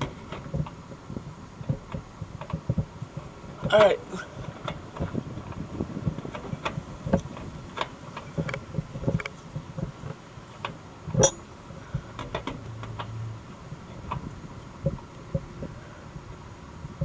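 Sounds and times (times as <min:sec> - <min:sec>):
hand tools clinking on metal: 0:11.2 - 0:11.4
loud metal clank: 0:11.2 - 0:11.5.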